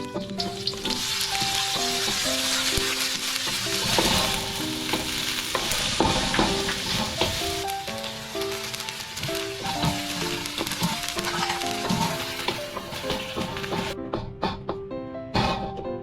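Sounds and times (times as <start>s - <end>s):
food sizzling in a pan: 0.0s - 14.0s
utensil scraping a pan: 0.6s - 7.7s, 8.8s - 14.0s.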